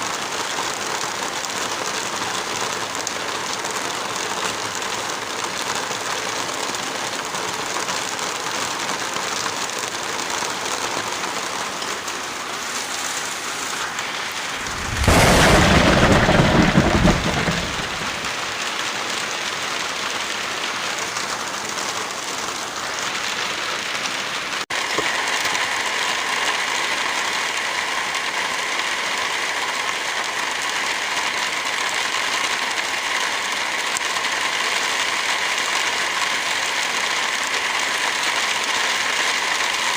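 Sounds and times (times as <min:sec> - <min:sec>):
heavy rain: 0:00.0 - 0:39.9
thunder rumble: 0:14.3 - 0:18.6.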